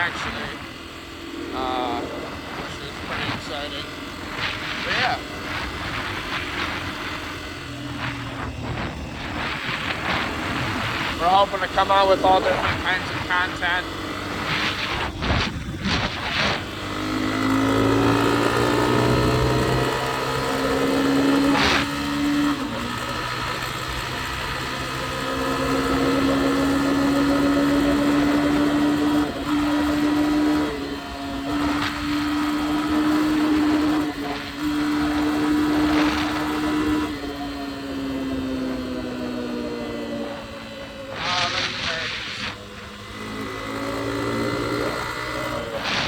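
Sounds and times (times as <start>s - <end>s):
vehicle engine accelerating: 0.0s - 46.0s.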